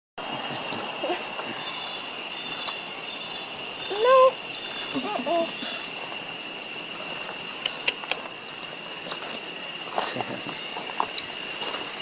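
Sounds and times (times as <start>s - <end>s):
baby monkeys chirping: 1.5s - 6.2s, 6.8s - 8.8s, 10.5s - 11.3s.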